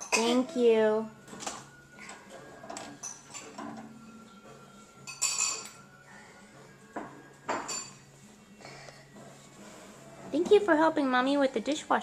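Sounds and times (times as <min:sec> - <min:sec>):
dishes and cutlery clinking: 0:00.0 - 0:00.6, 0:01.2 - 0:08.2.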